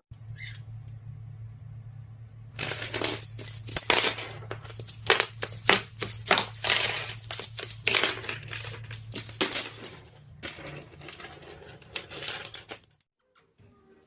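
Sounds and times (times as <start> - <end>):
low steady hum: 0.1 - 14.0
small hard objects clinking and rattling: 2.6 - 13.0.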